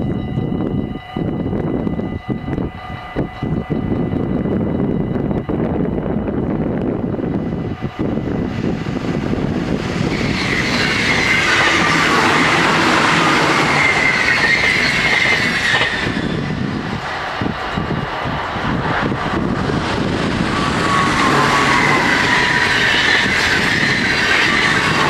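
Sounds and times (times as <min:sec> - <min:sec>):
train high steady whine: 0:00.0 - 0:25.0
train wheels rushing on rails: 0:03.4 - 0:25.0.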